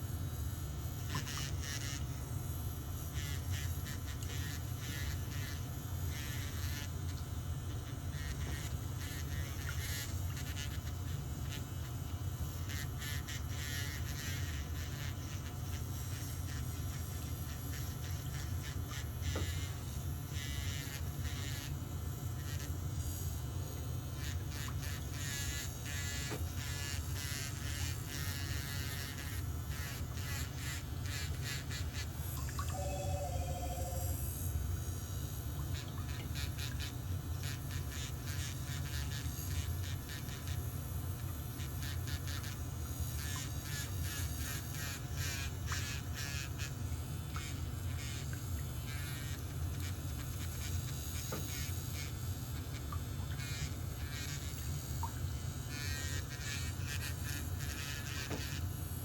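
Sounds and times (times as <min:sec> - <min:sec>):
low hum: 0:32.4 - 0:34.3.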